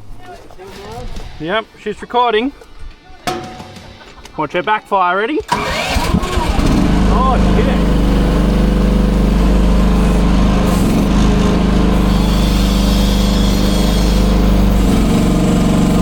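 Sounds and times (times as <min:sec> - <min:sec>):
small petrol engine running: 0:05.4 - 0:16.0.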